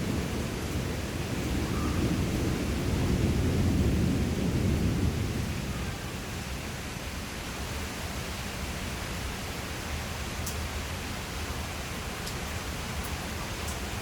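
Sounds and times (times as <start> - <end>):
thunder rumble: 0.0 - 7.0
steady rain: 0.0 - 14.0.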